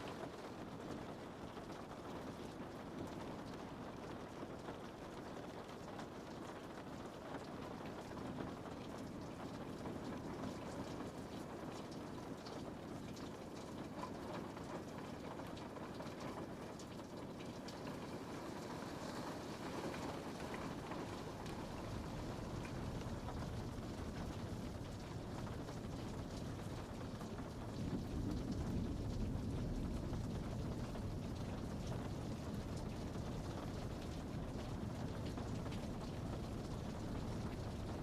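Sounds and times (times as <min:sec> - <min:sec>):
rain pattering on a window: 0:00.0 - 0:38.0.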